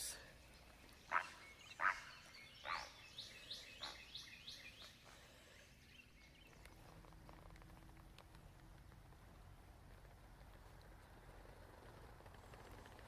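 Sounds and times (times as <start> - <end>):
heron harsh squawks: 1.1 - 3.0.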